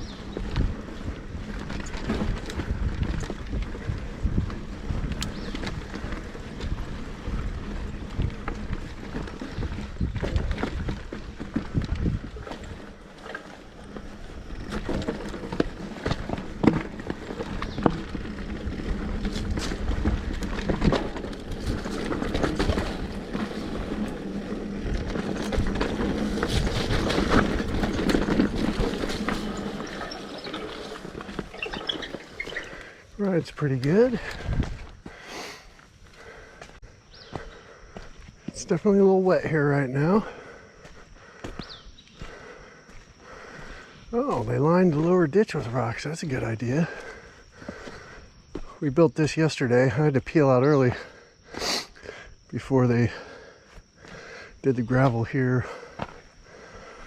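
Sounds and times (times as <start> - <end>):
wind rushing over microphone: 0.0 - 12.8, 34.1 - 35.0
bike tyre rumble: 0.0 - 57.0
bike clicks and knocks: 0.3 - 32.9.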